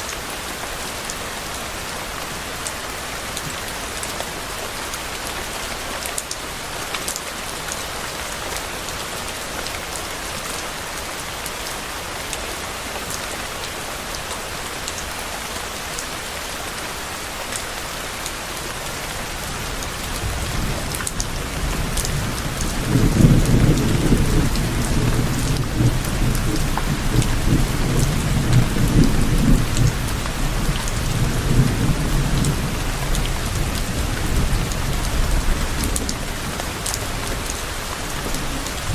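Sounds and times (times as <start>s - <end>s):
steady rain falling: 0.0s - 38.9s
low rolling thunder: 20.2s - 37.6s.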